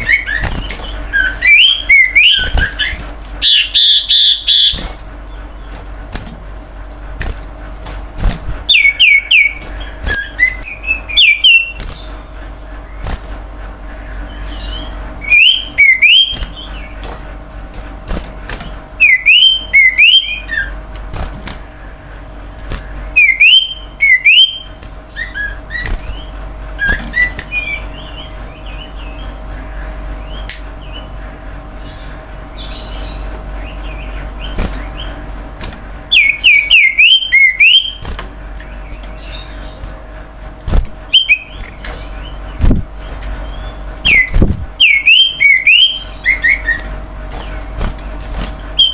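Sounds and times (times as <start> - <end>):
bird whistled song phrases: 0.0 - 4.8, 8.7 - 12.2, 14.3 - 16.9, 19.0 - 20.8, 23.2 - 29.3, 36.1 - 38.0, 41.1 - 41.6, 43.5 - 46.9
soft bird twittering: 0.0 - 5.8, 14.1 - 17.0, 18.6 - 20.8, 36.1 - 38.0, 41.1 - 47.7.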